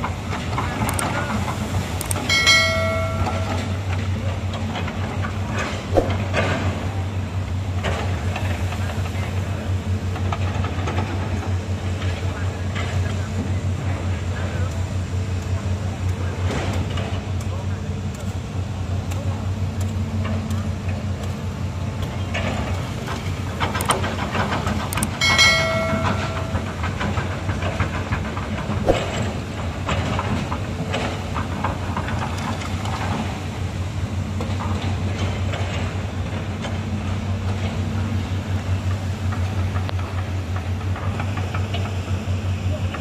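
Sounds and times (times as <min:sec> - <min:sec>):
excavator diesel engine running: 0:00.0 - 0:43.0
metallic clanks and knocks: 0:25.2 - 0:30.3.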